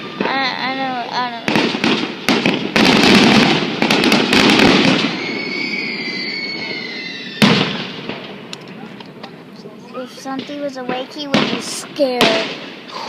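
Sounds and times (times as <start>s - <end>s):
firework burst: 0.0s - 9.2s, 10.3s - 13.0s
firework crackling: 0.0s - 13.0s
high steady whistling tone: 5.1s - 7.4s.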